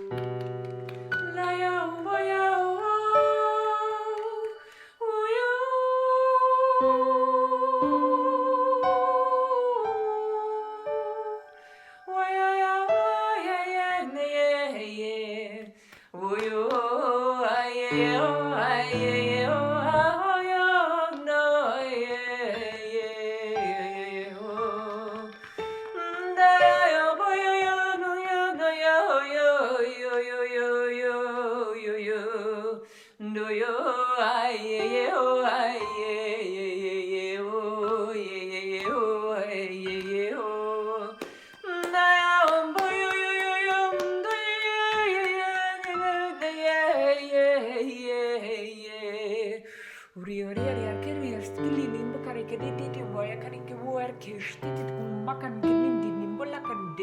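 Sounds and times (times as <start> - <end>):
woman singing wordless tones: 1.2 - 57.0.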